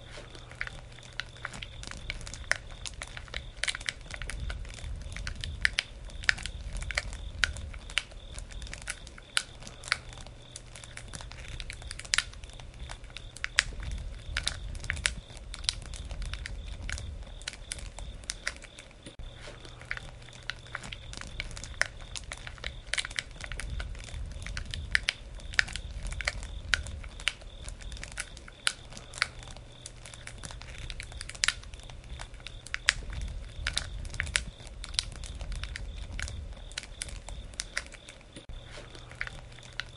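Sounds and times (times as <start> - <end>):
low rumble: 0.0 - 18.3, 19.1 - 28.2
campfire crackling and popping: 0.0 - 39.9.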